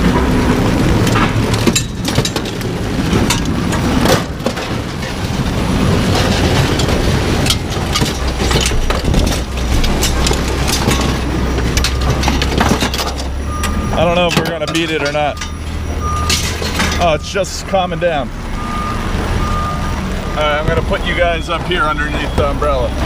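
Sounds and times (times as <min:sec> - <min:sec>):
heavy rain hissing: 0:00.0 - 0:12.5
rain taps and knocks: 0:00.0 - 0:23.0.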